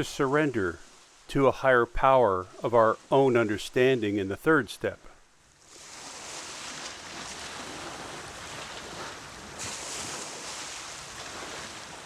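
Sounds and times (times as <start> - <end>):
waves washing onto shore: 5.4 - 12.0.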